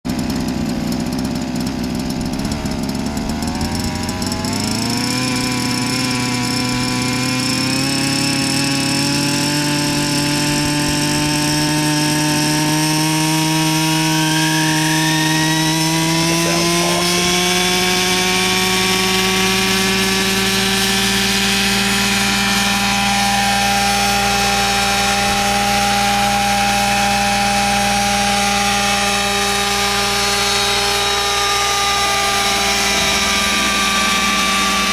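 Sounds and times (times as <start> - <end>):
model helicopter engine running: 0.1 - 34.9.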